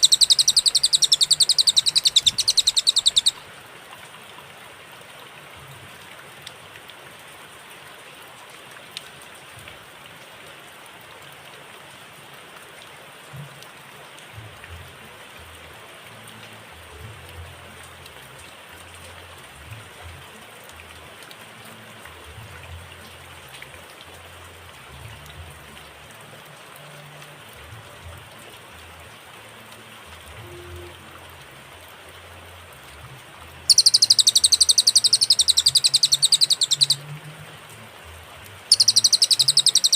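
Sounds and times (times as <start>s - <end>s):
bird high-pitched trill: 0.0s - 3.4s, 33.7s - 37.0s, 38.7s - 39.9s.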